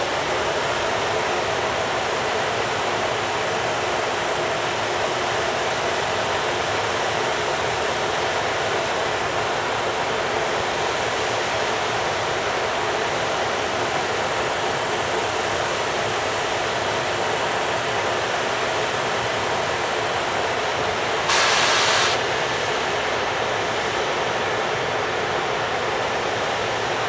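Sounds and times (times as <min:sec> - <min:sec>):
freight train wheels on rail: 0:18.2 - 0:23.4.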